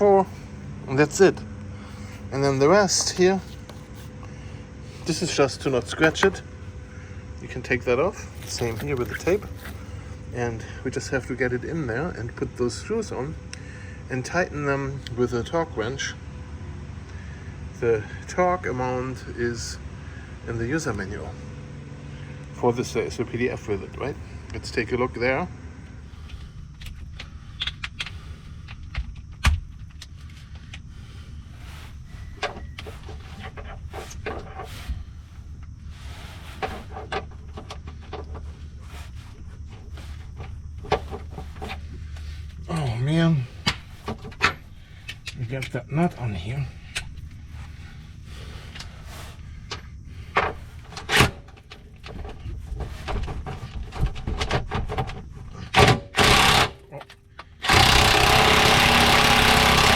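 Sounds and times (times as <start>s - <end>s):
hand tools clicking and scraping: 8.1s - 10.2s, 43.5s - 59.9s
loud rasp: 56.2s - 56.8s, 57.6s - 59.9s.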